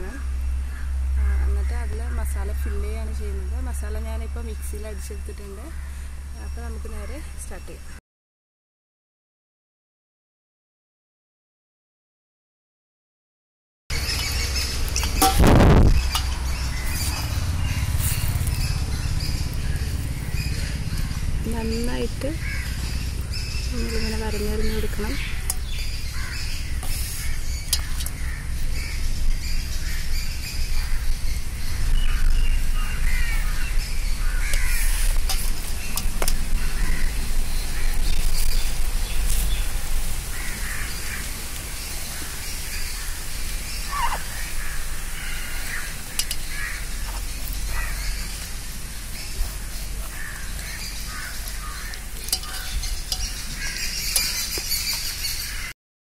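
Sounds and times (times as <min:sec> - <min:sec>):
steady low rumble: 0:00.0 - 0:08.0, 0:13.9 - 0:55.7
birds chirping: 0:13.9 - 0:55.8.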